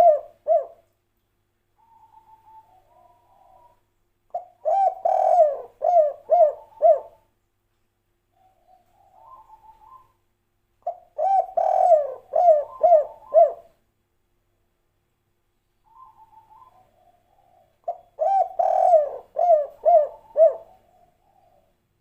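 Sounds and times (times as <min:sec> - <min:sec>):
dove cooing: 0:00.0 - 0:00.9, 0:01.8 - 0:07.3, 0:08.3 - 0:10.2, 0:10.8 - 0:13.8, 0:15.9 - 0:21.8.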